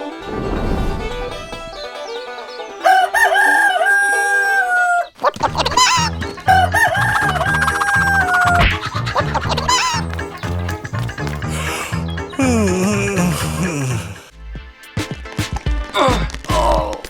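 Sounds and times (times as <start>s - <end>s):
backing music: 0.0s - 4.2s, 5.4s - 16.8s
rooster crowing: 2.8s - 5.2s, 5.8s - 8.6s.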